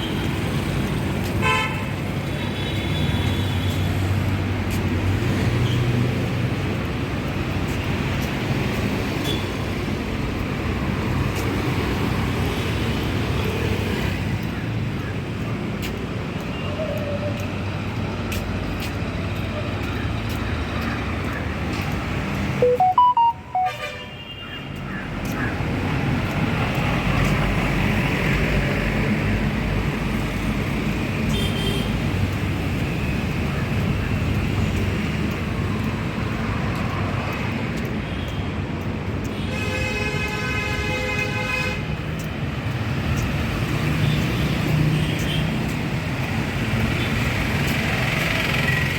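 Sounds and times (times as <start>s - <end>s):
road traffic rumble: 0.0s - 48.9s
short high-pitched tone: 22.6s - 23.9s
faint clicks: 33.5s - 39.5s.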